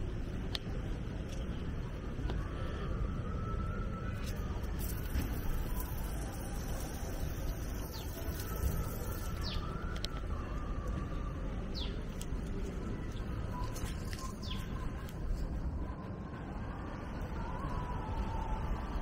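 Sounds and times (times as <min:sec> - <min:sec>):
outdoor rumble: 0:00.0 - 0:19.0
bird chirping: 0:04.9 - 0:10.0, 0:11.6 - 0:12.3, 0:13.0 - 0:15.2.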